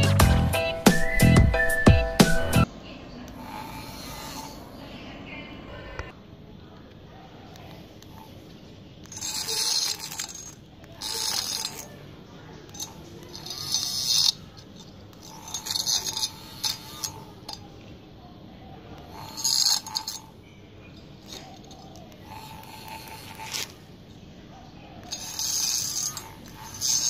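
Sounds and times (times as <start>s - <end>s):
small motor whine: 3.3s - 4.8s, 12.6s - 17.7s, 19.0s - 20.3s, 21.2s - 23.9s, 25.1s - 27.0s.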